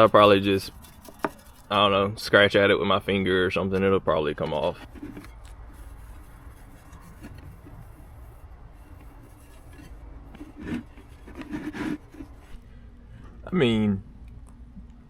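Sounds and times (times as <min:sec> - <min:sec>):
scraping paint off a wheel: 0:00.0 - 0:02.0, 0:04.5 - 0:12.8.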